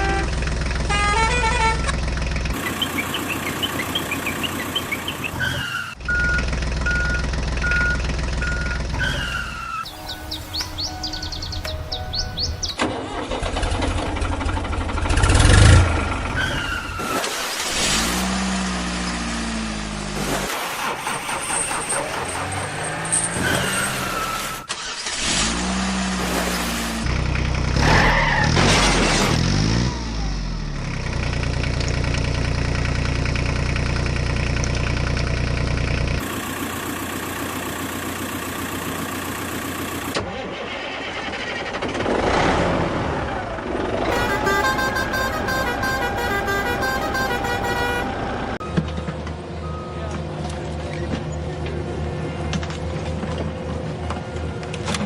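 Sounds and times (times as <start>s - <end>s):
vehicle engine revving: 12.4s - 24.4s, 41.8s - 48.6s.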